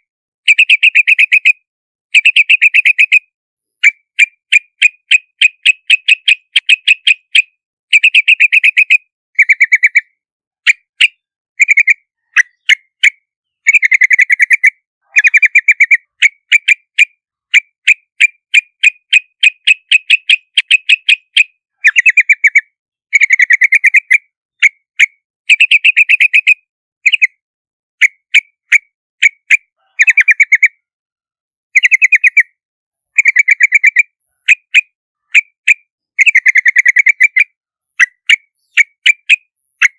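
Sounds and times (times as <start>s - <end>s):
bird chattering calls: 3.8s - 24.8s, 25.5s - 27.4s, 28.3s - 30.8s, 31.8s - 39.9s.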